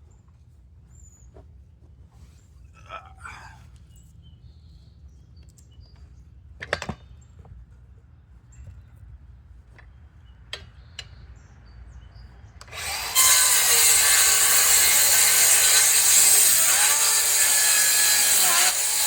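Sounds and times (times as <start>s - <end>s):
power saw cutting wood: 12.6s - 19.0s.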